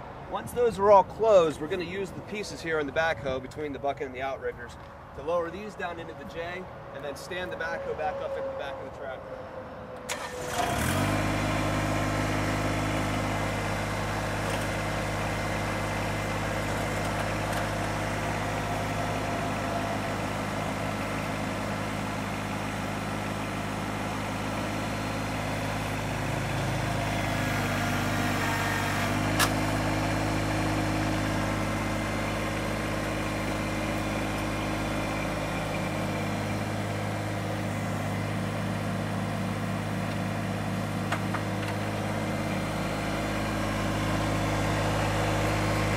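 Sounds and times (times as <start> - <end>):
diesel tractor engine idling: 10.0 - 45.9.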